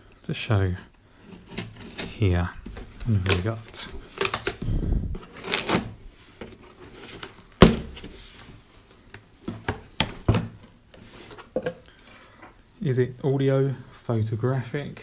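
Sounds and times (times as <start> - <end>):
package rustling and knocking: 2.6 - 8.6, 9.4 - 11.8.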